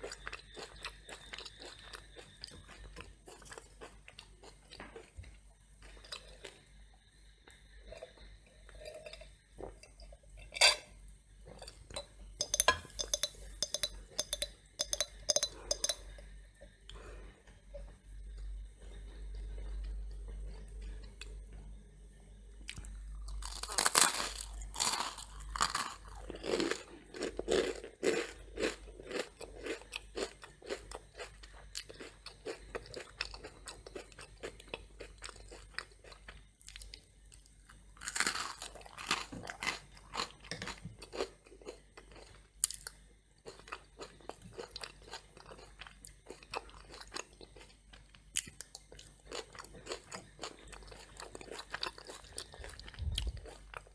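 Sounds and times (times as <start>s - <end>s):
crunchy toast being bitten: 0.0s - 5.2s, 22.7s - 53.9s
chewing crunches: 0.0s - 9.8s, 22.7s - 53.9s.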